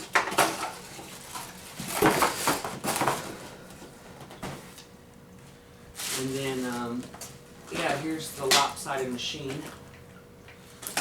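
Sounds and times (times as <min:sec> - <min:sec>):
cardboard and plastic packaging rustling: 0:00.0 - 0:03.6, 0:06.0 - 0:08.8.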